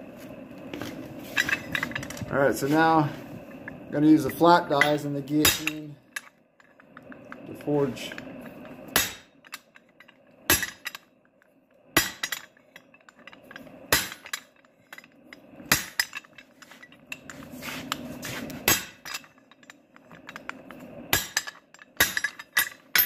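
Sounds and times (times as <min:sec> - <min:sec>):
heavy hammer strikes on metal: 0:05.4 - 0:05.8, 0:08.9 - 0:09.3.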